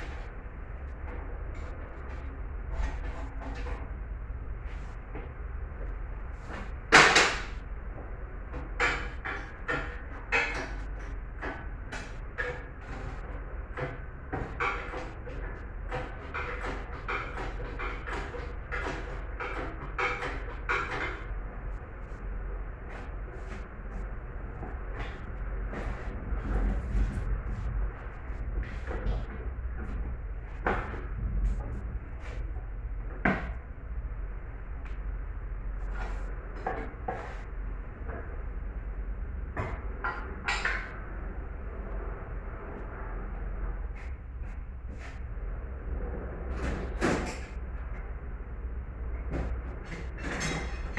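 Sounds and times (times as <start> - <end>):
steady low hum: 0.0 - 50.9
metal tools clanking and scraping: 49.9 - 50.9.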